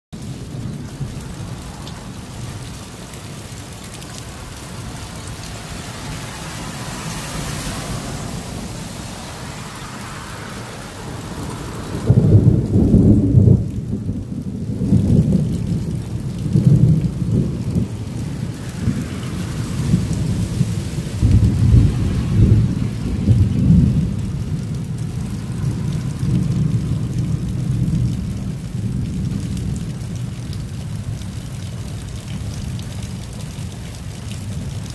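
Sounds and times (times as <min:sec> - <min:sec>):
rain hissing: 0:00.2 - 0:34.9
thunder crashing and rumbling: 0:10.9 - 0:30.4.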